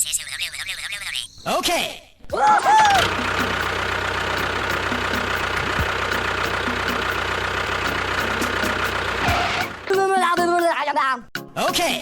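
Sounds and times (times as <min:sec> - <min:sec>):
small engine idling: 0:02.6 - 0:10.1.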